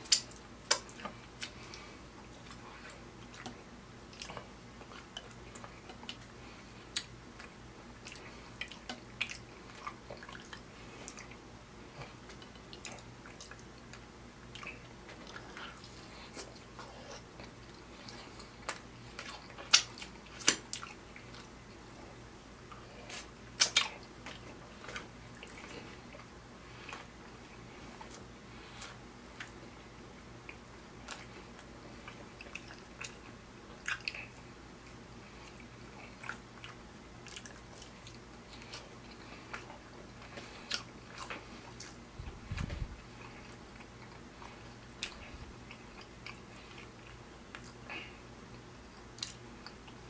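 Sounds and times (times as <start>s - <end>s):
wet mouth clicks and smacks: 0.0s - 1.6s, 18.6s - 20.9s, 23.1s - 25.6s
chewing steak: 0.0s - 50.0s.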